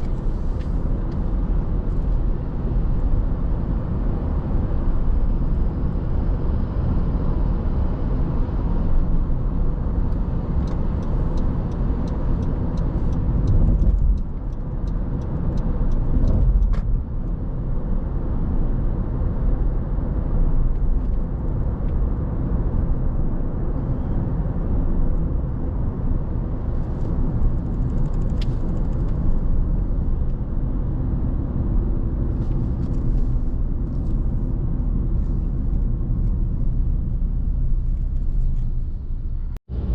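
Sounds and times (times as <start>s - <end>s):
car engine: 0.0s - 39.9s.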